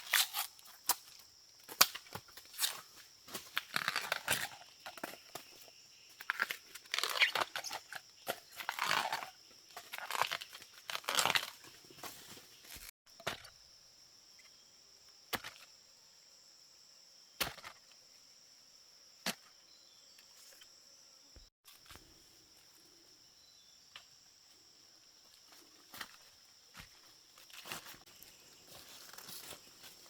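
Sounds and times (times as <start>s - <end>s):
insect chirring: 0.0s - 30.0s.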